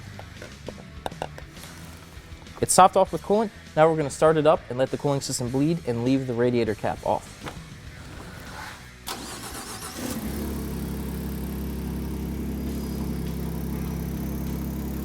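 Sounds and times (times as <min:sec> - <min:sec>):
starter cranking: 0:00.0 - 0:03.2, 0:06.0 - 0:10.3
car engine idling: 0:00.0 - 0:04.4, 0:05.0 - 0:15.0.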